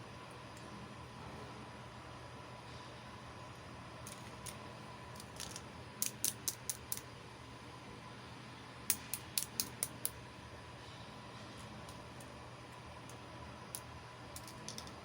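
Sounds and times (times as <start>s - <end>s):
faint steady hum: 0.0s - 15.0s
clicks of small toy pieces: 4.1s - 4.6s, 5.2s - 7.1s, 8.9s - 10.2s, 14.4s - 15.0s.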